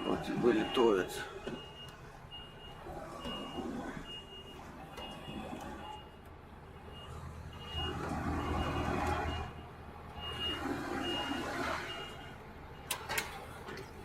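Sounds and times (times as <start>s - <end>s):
diesel truck engine: 0.0s - 14.0s
truck reversing alarm beeping: 0.0s - 14.0s.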